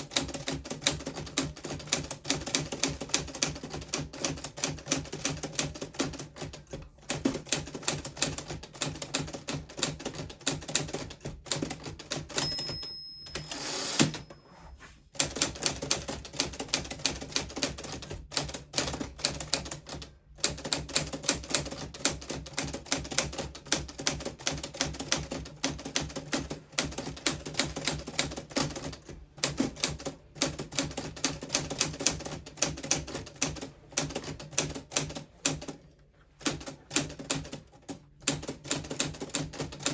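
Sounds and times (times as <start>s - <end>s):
typewriter carriage return: 11.6s - 14.4s
typewriter bell ding: 12.2s - 14.6s.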